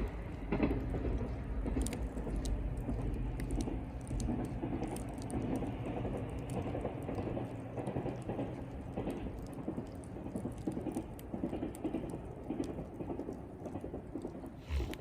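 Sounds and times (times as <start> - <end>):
campfire crackling and popping: 0.0 - 15.0
low rumble: 14.6 - 15.0.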